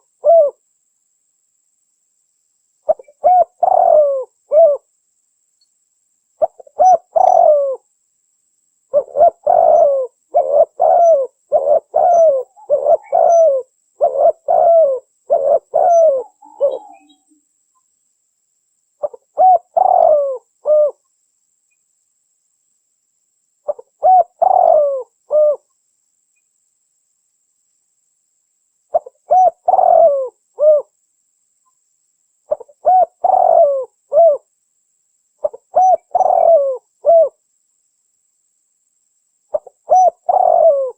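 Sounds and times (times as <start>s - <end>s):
dove cooing: 0.0s - 0.6s, 2.9s - 4.9s, 6.4s - 7.8s, 8.9s - 17.3s, 19.0s - 21.0s, 23.7s - 25.6s, 28.9s - 30.9s, 32.5s - 34.5s, 35.4s - 37.4s, 39.5s - 40.9s.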